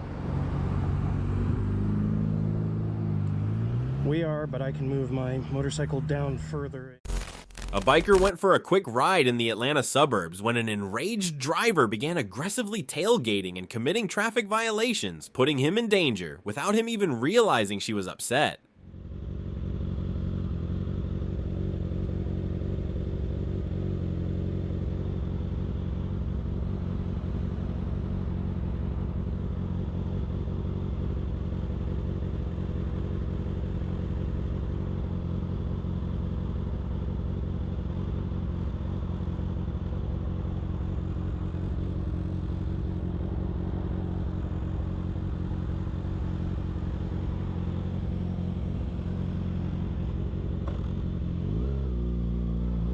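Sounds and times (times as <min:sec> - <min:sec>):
road noise: 0:00.0 - 0:52.9
motorcycle engine running: 0:18.8 - 0:52.9.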